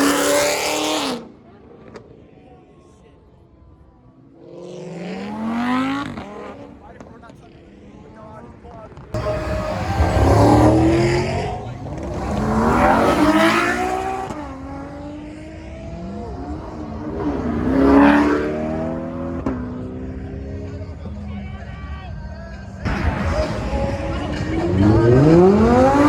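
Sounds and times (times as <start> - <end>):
car engine revving: 0.0 - 2.0, 4.4 - 7.6, 8.9 - 21.0, 22.8 - 26.0.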